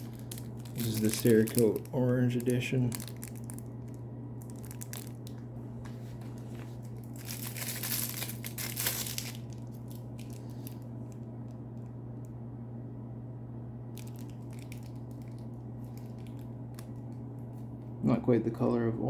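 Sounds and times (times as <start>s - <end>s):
packaging crinkling and rustling: 0.0s - 11.3s, 13.9s - 17.9s
steady low hum: 0.0s - 19.0s.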